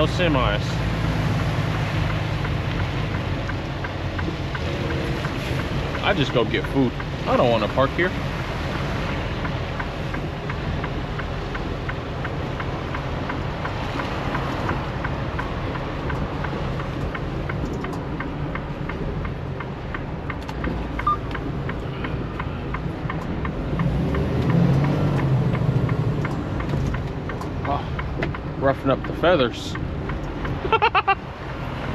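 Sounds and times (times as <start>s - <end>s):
light ticking: 0.0s - 31.9s
truck engine and road rumble: 0.0s - 31.9s.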